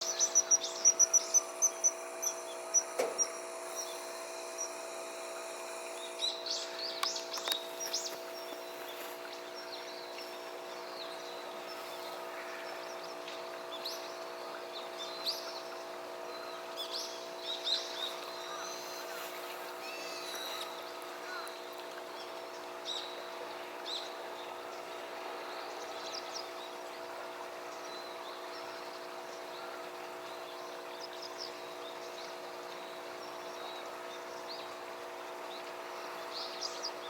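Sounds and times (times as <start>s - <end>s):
birds calling: 0.0s - 23.2s
steady low hum: 0.0s - 37.0s.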